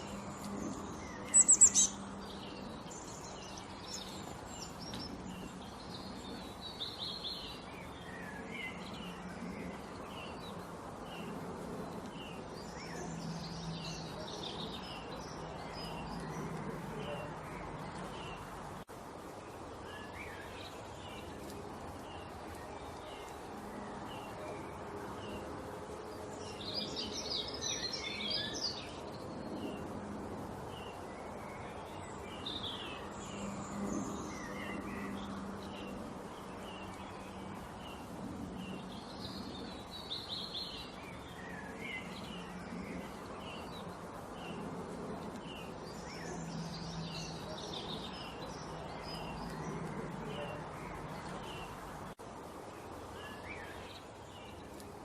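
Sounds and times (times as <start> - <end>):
background hiss: 0.0 - 55.0
small birds chirping: 0.0 - 55.0
high bird twittering: 0.7 - 5.0.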